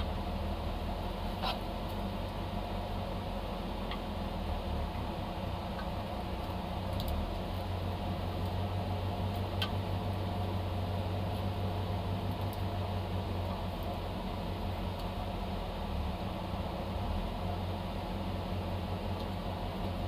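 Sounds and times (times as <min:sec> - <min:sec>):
car engine idling: 0:00.0 - 0:20.0
faint light ticks: 0:05.7 - 0:07.2.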